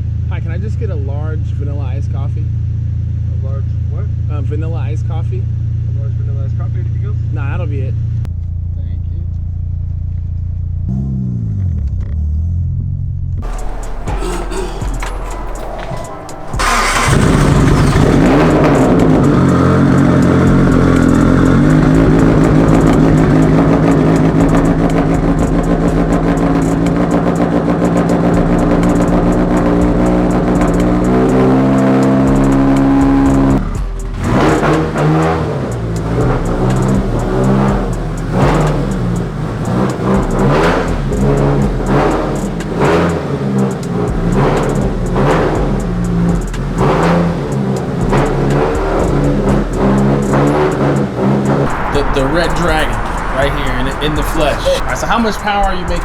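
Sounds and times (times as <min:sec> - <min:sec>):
turbocharged car engine revving: 0:13.4 - 0:56.0.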